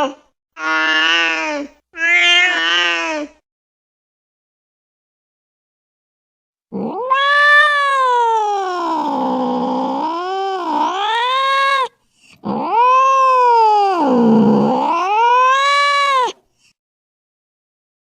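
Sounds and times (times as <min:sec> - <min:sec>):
cat yowling: 0:00.6 - 0:03.3, 0:06.8 - 0:16.4.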